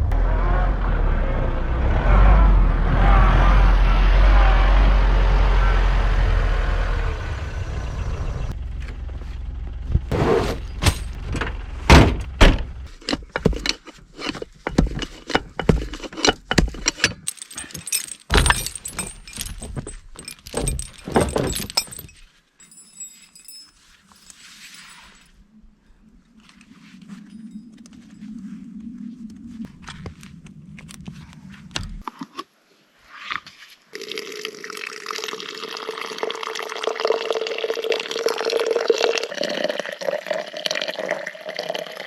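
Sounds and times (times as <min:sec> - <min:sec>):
vehicle engine rumbling: 0:00.0 - 0:22.3
sharp clinks and knocks: 0:12.9 - 0:25.3.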